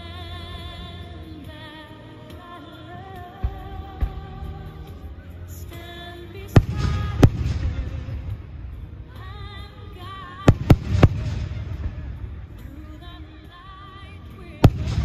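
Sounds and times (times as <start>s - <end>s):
low rumble: 3.0s - 15.0s
fireworks bangs: 6.6s - 8.8s, 10.5s - 13.2s, 14.6s - 15.0s.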